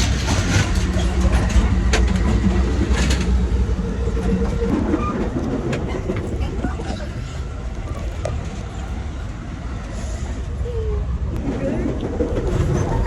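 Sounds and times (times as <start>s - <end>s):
sharp clicks of train wheels: 0.0s - 6.3s
train rumbling from inside carriage: 0.0s - 13.0s.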